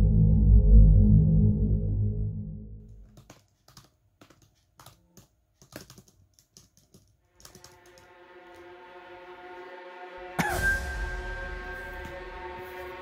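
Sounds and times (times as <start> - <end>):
laptop keyboard typing: 2.9 - 8.1
soft background music: 7.3 - 13.0.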